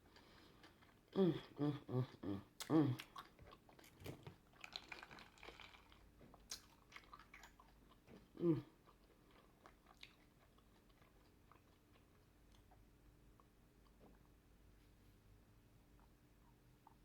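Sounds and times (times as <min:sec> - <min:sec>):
person chewing food: 0:00.0 - 0:14.5
person humming: 0:01.2 - 0:03.0, 0:08.4 - 0:08.6.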